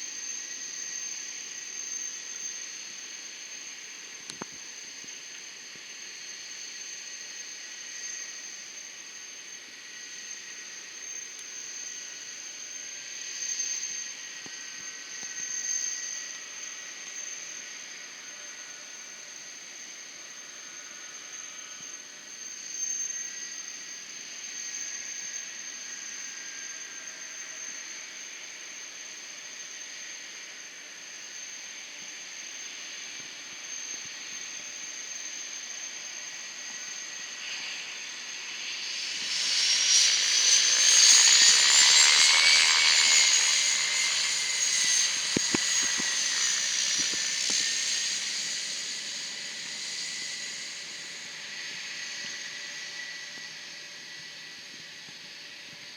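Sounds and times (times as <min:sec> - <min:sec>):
jet engines whining and roaring: 0:35.8 - 0:55.9.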